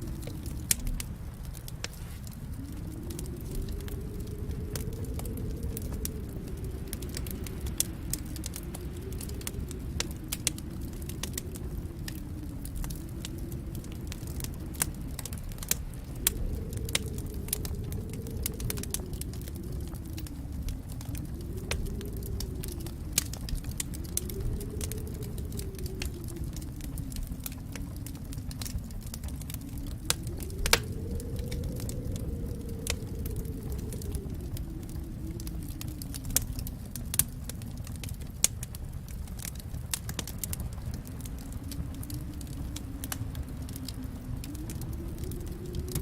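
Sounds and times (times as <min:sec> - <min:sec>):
low hum: 0:00.0 - 0:39.3
wood fire crackling: 0:00.0 - 0:46.0.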